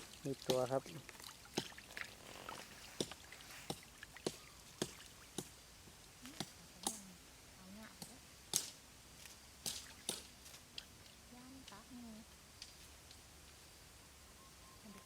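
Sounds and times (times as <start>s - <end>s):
sharp slaps and taps: 8.0s - 8.8s, 9.6s - 10.3s.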